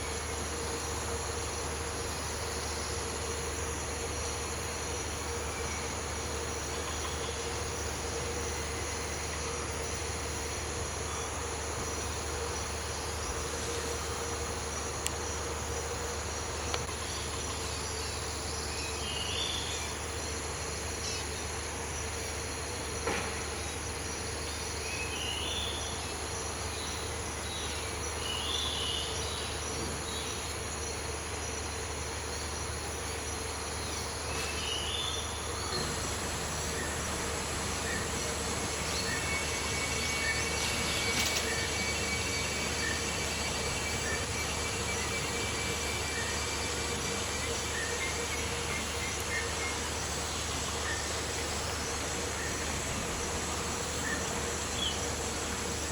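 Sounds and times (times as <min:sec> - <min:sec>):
insects droning: 0:00.0 - 0:55.9.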